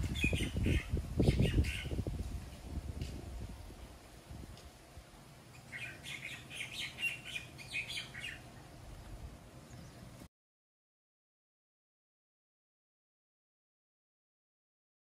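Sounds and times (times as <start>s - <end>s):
small birds chirping: 0.0s - 2.6s, 5.5s - 10.3s.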